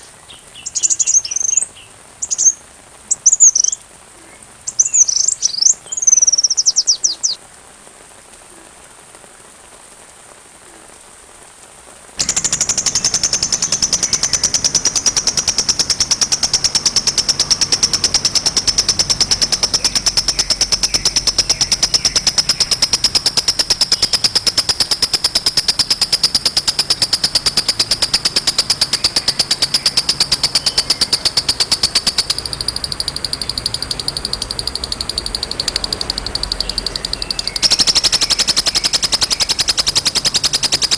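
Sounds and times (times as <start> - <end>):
faint hiss: 0.0 - 40.9
animal high-pitched rattling trill: 0.6 - 3.8, 12.2 - 40.9.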